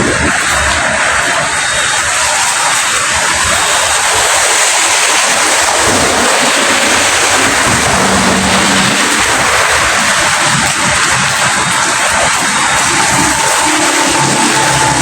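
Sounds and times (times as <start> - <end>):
heavy rain: 0.0 - 15.0
low rumble: 5.8 - 15.0.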